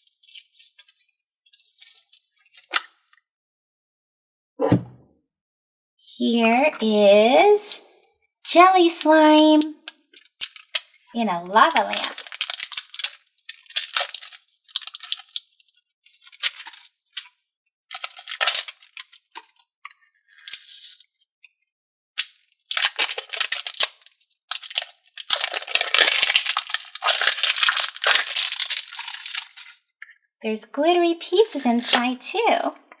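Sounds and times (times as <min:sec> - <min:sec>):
slime crackling and squelching: 0:10.2 - 0:15.5, 0:22.2 - 0:29.8.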